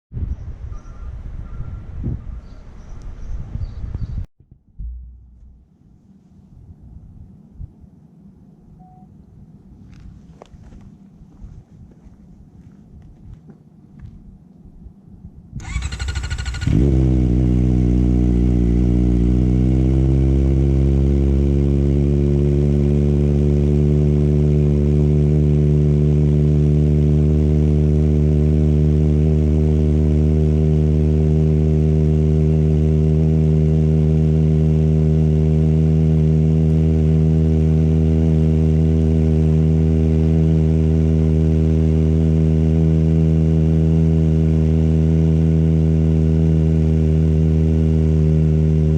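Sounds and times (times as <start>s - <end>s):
starter motor cranking: 15.6s - 16.9s
motorcycle engine idling: 15.6s - 19.5s.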